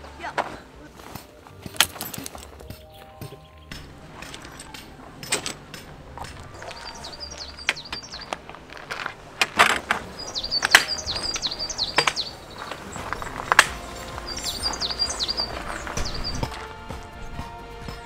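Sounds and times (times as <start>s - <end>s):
metal tent poles clacking: 0.1s - 18.0s
small bird chirping: 2.7s - 5.0s, 6.4s - 8.8s, 10.0s - 16.5s.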